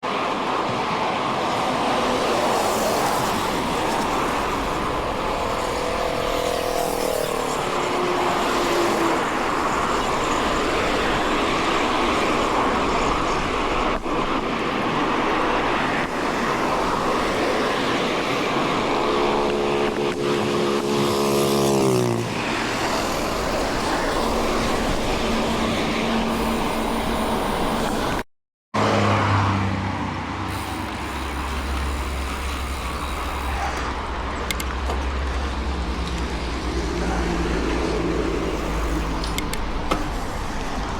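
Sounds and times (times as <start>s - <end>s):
wind and tyre noise: 0.0s - 28.2s, 28.8s - 40.9s
motor vehicles passing: 1.8s - 28.1s, 28.8s - 40.9s.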